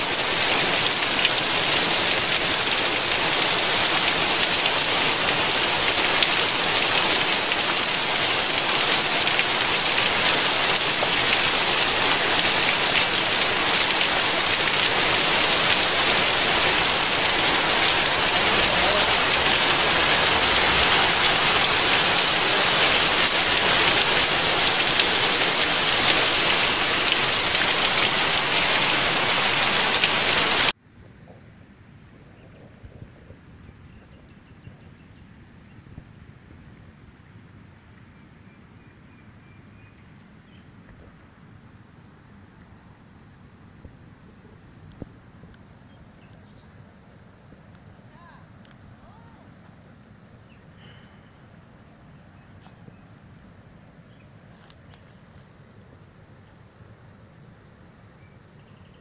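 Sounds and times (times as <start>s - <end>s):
water spouting from drainpipe: 0.0s - 30.7s
heavy rain on hard surfaces: 0.0s - 30.8s.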